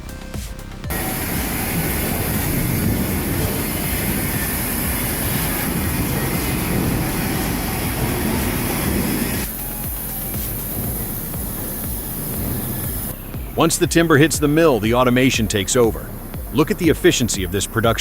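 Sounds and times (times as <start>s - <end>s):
truck engine and road noise: 0.0s - 18.0s.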